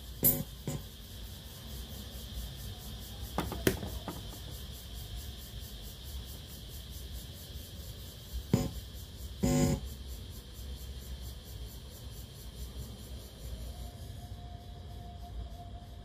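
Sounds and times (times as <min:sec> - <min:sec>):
electronic hiss: 0:00.0 - 0:01.5, 0:07.8 - 0:10.3
low mains hum: 0:00.0 - 0:16.0.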